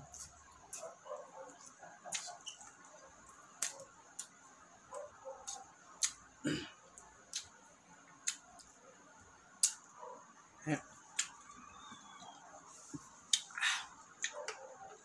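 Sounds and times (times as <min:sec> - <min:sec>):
chewing with wet mouth clicks: 0:01.6 - 0:02.8, 0:08.2 - 0:08.8.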